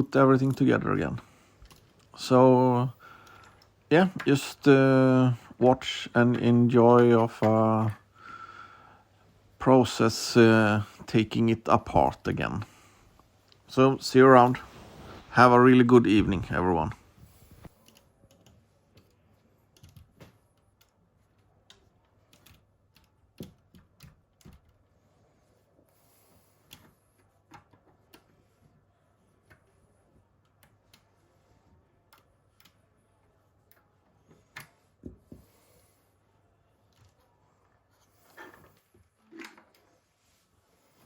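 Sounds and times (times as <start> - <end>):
plastic parts clicking and knocking: 17.7 - 24.9.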